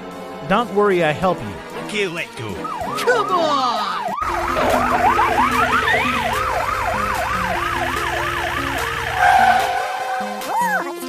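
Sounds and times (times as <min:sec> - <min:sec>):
cartoon police siren yelping: 0:02.5 - 0:10.9.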